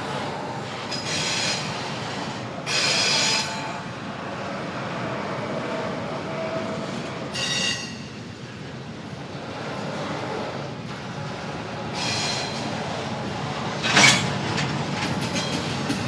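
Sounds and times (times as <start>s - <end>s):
freight train wheels rumbling: 0.0s - 16.0s
high-pitched wheel squeals: 0.9s - 2.0s, 7.3s - 8.2s.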